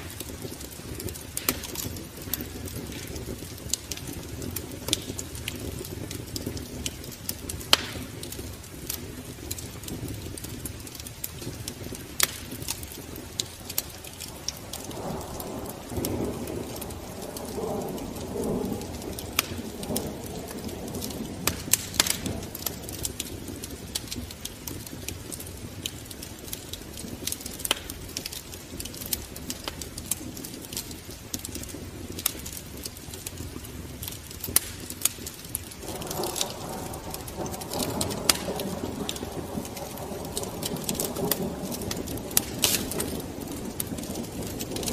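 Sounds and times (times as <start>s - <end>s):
wood fire crackling and popping: 0.0s - 44.9s.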